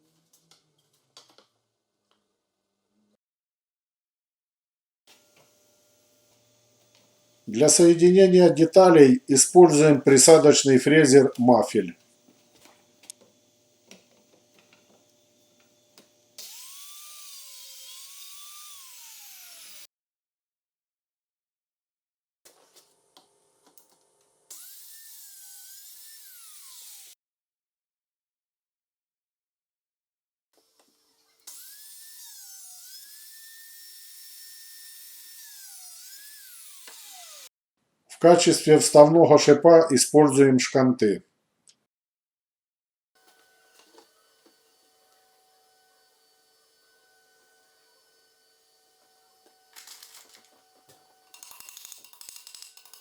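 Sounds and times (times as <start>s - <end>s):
drilling machine motor whining: 12.0s - 19.9s, 35.4s - 37.5s, 43.2s - 53.0s.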